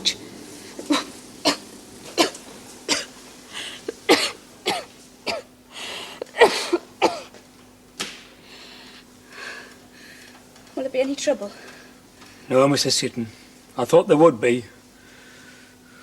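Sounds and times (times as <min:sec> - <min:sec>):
woman coughing: 0:00.8 - 0:03.2, 0:03.9 - 0:05.5, 0:06.2 - 0:07.4.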